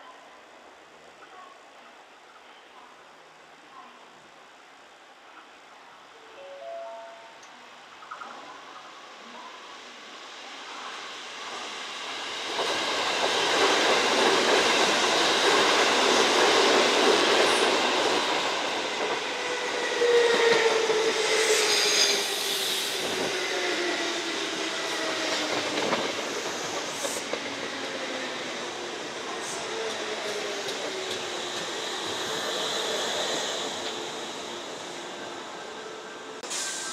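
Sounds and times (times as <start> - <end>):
train brake squeal and clatter: 19.4 - 23.3, 36.5 - 36.9.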